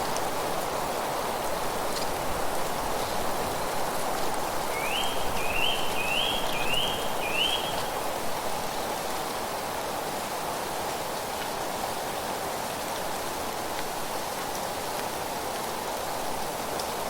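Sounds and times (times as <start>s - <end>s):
leaves rustling: 0.0s - 9.2s.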